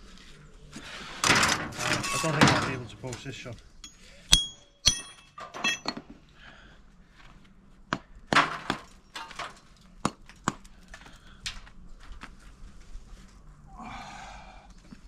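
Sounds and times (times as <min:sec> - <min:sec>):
trowel knocking and scraping bricks: 0:03.8 - 0:06.1.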